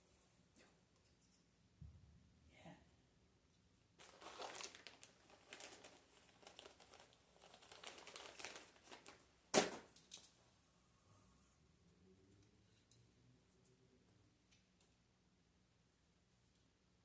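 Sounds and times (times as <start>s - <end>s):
material crinkling and rustling: 4.0s - 10.4s.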